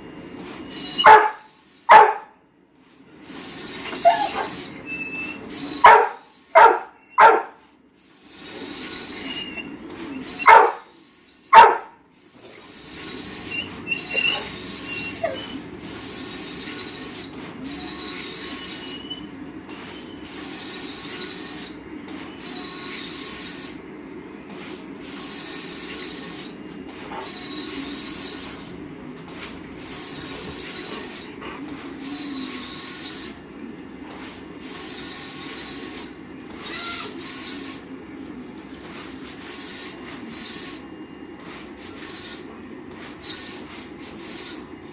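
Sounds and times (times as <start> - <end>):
plotter printing: 0.0 - 44.9
dog barking loudly: 1.0 - 2.3, 5.8 - 7.6, 10.4 - 10.9, 11.5 - 12.0.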